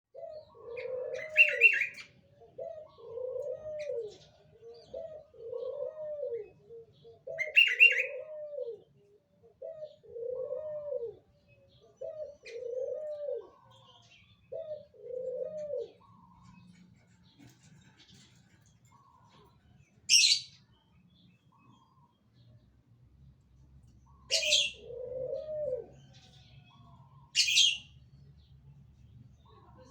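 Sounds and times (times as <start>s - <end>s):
dove cooing: 0.1s - 16.8s, 18.9s - 20.5s, 24.1s - 28.0s.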